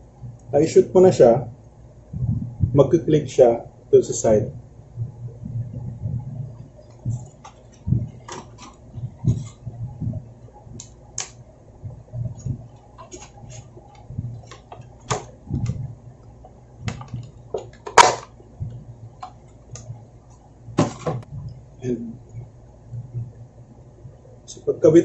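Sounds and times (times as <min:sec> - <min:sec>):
computer hardware clicks and knocks: 0:12.4 - 0:15.8, 0:16.4 - 0:18.4.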